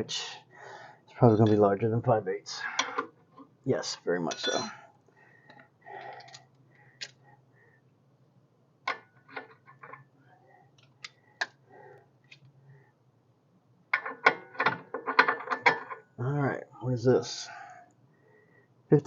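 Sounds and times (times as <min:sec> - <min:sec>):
metal tools clinking: 0:04.3 - 0:04.8.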